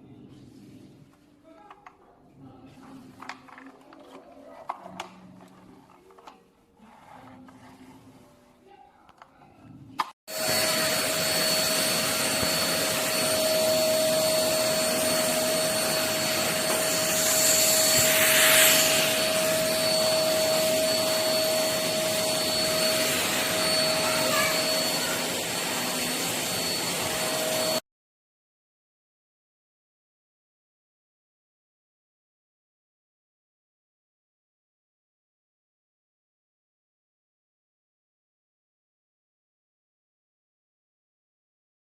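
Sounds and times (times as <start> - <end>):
vacuum cleaner running: 10.3 - 27.8.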